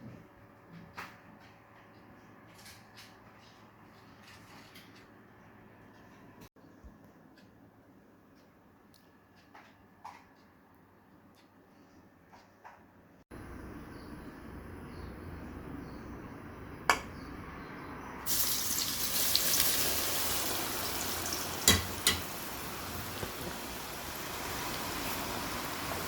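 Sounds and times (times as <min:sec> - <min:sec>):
hot oil sizzling in a pan: 0:18.3 - 0:26.0
utensil clinking against pan: 0:21.6 - 0:22.4.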